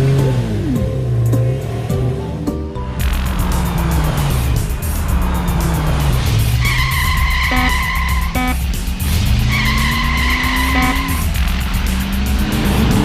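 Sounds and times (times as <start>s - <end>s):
background music with beat: 0.1s - 13.0s
cartoon engine hum: 3.0s - 8.6s, 9.7s - 11.4s
long high tones: 7.5s - 8.6s
short blips: 8.4s - 8.6s.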